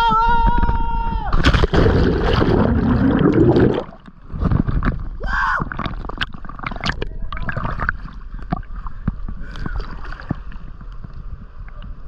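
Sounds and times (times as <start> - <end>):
water splashing and sloshing: 1.3 - 11.4.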